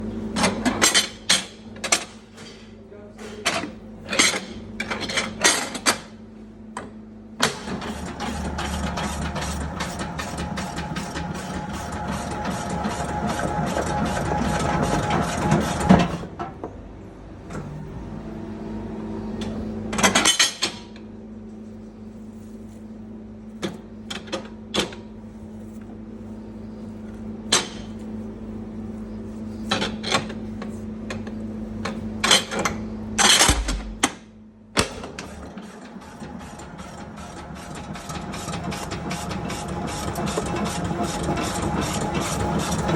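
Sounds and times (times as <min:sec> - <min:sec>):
meat-dicing machine clattering: 0:07.4 - 0:16.2, 0:34.8 - 0:42.9
motor hum: 0:07.4 - 0:16.4.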